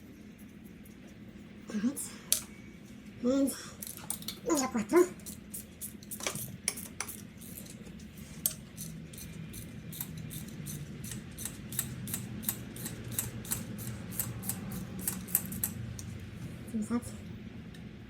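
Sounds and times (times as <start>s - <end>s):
ratchet wrench clicking: 8.4s - 15.8s.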